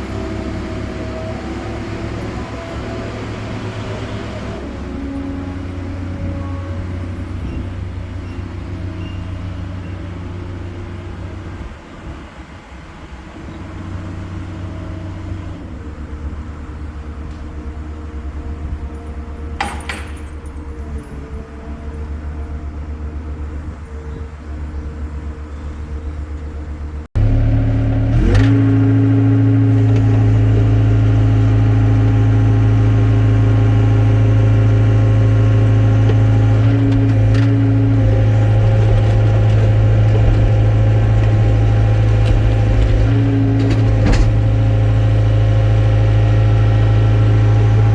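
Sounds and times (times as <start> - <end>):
excavator diesel engine running: 0.0 - 47.9
loud engine drone under load: 0.0 - 47.9.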